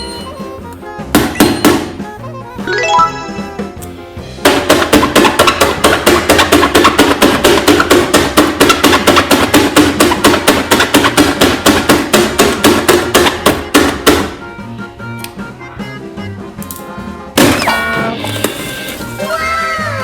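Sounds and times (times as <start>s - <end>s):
fast hard knocks: 4.4s - 14.4s.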